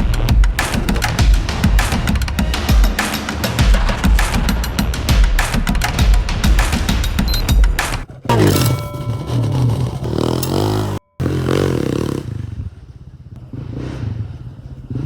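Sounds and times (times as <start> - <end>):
drum music: 0.0 - 10.5
motorcycle engine revving: 8.1 - 15.0.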